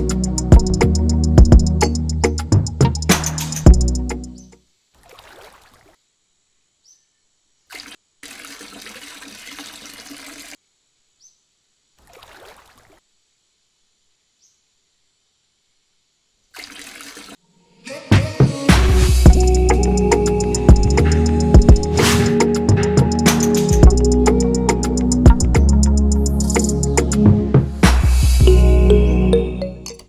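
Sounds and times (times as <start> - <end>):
music with steady beat: 0.0 - 4.3, 18.2 - 30.0
water trickling and splashing: 4.9 - 6.0, 7.7 - 10.6, 12.0 - 13.1, 16.5 - 17.4.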